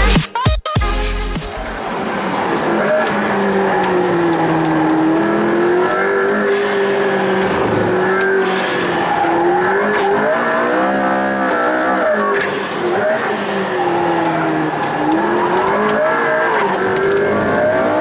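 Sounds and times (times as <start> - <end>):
car engine and exhaust: 1.0 - 18.0.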